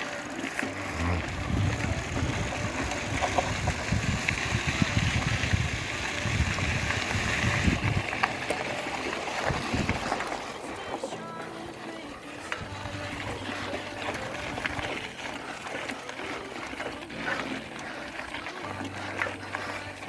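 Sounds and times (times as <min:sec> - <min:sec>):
wind buffeting microphone: 0:01.0 - 0:08.4, 0:09.4 - 0:10.4.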